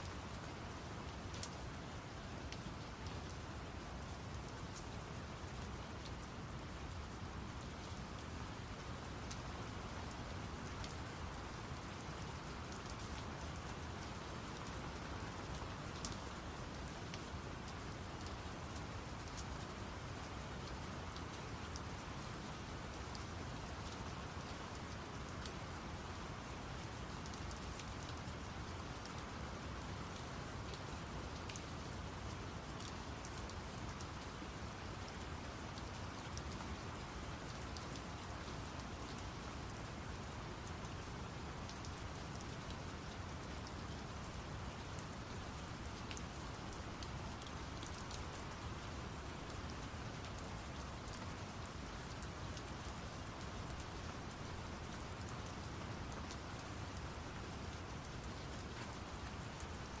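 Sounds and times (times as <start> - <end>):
steady rain falling: 0.0 - 60.0
sharp raindrop ticks: 1.3 - 1.6, 9.0 - 22.2, 26.4 - 35.0, 35.7 - 60.0.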